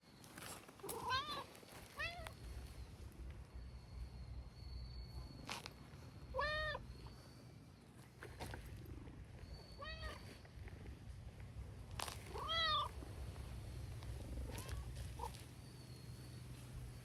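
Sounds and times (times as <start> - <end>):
cat meowing: 12.3 - 12.9.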